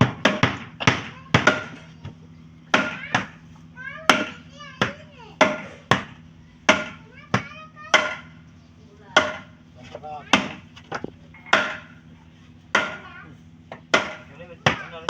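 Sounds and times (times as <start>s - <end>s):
sharp blows on wood: 5.4s - 7.0s, 11.5s - 12.0s, 12.7s - 13.2s, 13.9s - 14.9s.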